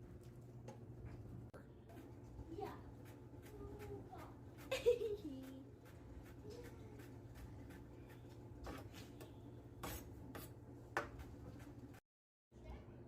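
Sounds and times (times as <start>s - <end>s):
utensil scraping in a pan: 1.9s - 12.0s.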